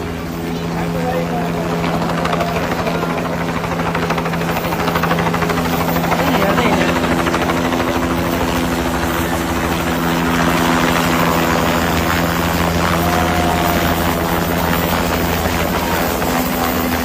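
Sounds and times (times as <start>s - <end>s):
helicopter engine tone: 0.0s - 17.0s
helicopter rotor beat: 0.0s - 17.0s.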